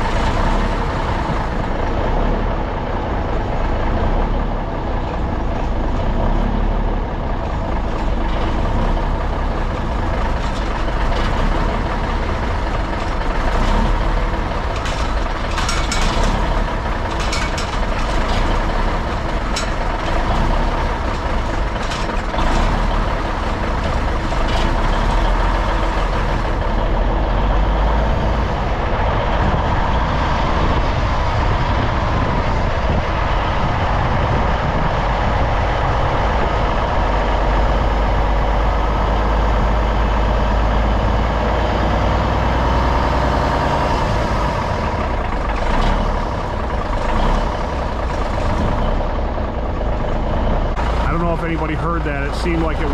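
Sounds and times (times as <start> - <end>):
diesel truck engine idling: 0.0 - 52.9
sharp clicks and rattles: 7.5 - 27.5, 43.1 - 52.9.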